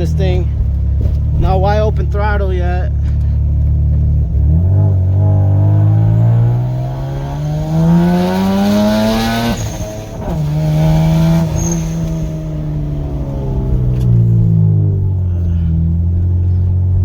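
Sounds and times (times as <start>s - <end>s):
turbocharged car engine revving: 0.0s - 17.0s.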